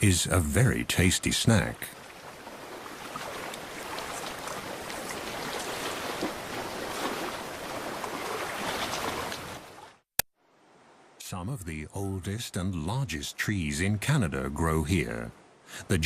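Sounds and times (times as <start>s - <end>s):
sea water washing over rocks: 1.9s - 9.9s.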